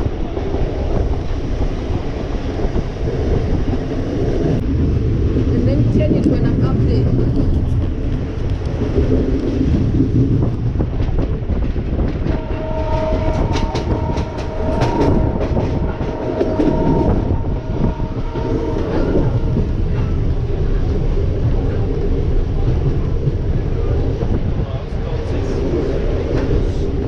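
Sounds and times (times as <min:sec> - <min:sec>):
train rumbling along track: 0:00.0 - 0:27.0
steady high tone: 0:12.3 - 0:20.9.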